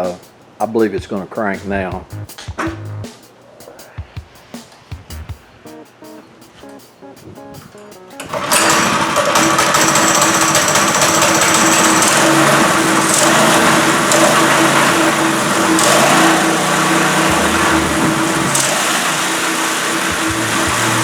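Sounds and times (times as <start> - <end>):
go-kart small engine running: 8.2 - 21.0.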